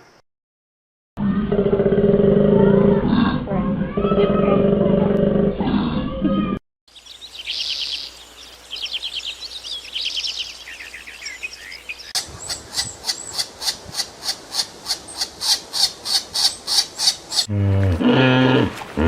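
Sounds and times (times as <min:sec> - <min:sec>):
bird trilling: 0:06.9 - 0:17.5.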